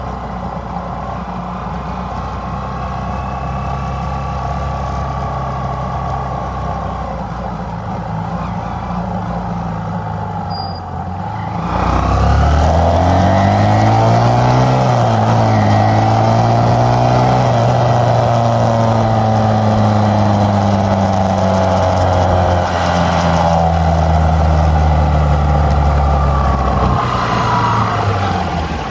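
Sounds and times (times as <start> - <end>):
motorcycle engine revving: 9.6 - 28.9.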